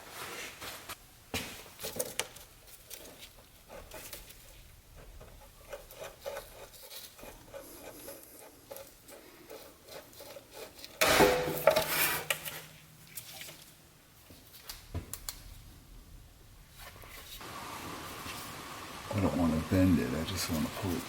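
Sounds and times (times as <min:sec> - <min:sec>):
metal scraping rasp: 0:05.4 - 0:12.7.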